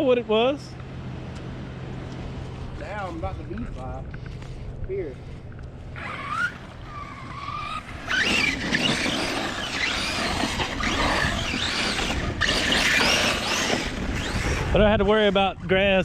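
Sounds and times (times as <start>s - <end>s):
tyres scrabbling over dirt: 5.4s - 15.4s
electric motor whining: 5.7s - 15.4s.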